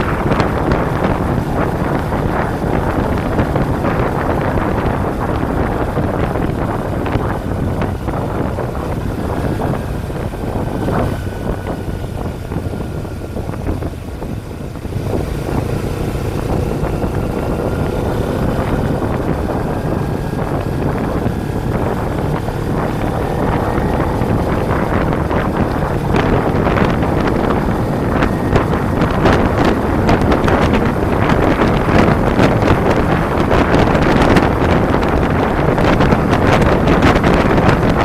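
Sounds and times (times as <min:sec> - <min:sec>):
motorcycle engine cruising: 0:00.0 - 0:38.0
wind rushing over microphone: 0:00.0 - 0:38.0.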